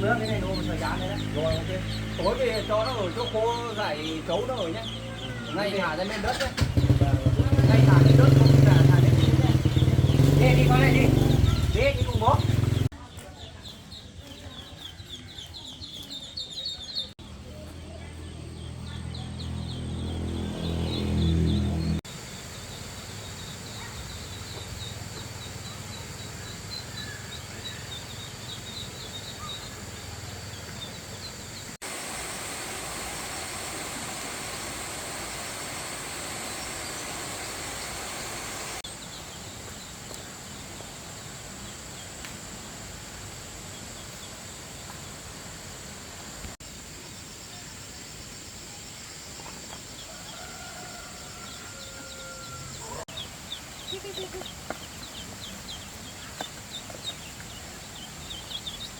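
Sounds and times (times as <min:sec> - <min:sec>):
faint chirping: 0:00.0 - 0:45.5
insect drone: 0:19.4 - 0:56.4
poultry calling: 0:50.0 - 0:55.1.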